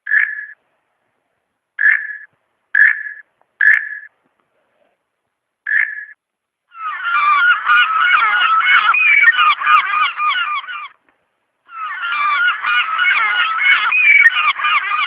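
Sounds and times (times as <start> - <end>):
flock of geese honking: 6.8 - 11.0, 11.7 - 15.0.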